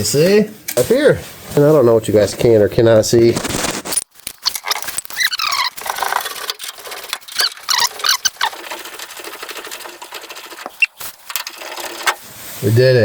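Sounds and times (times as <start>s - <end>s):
bolt squeaking: 4.3s - 12.2s
ratchet wrench clicking: 4.5s - 12.2s.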